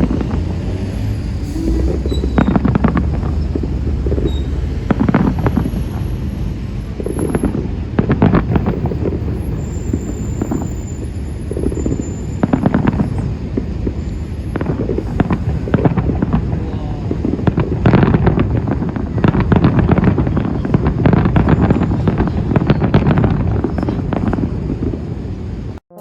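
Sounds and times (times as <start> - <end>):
low rumble: 0.0 - 10.5
fireworks bangs and crackles: 0.0 - 25.8.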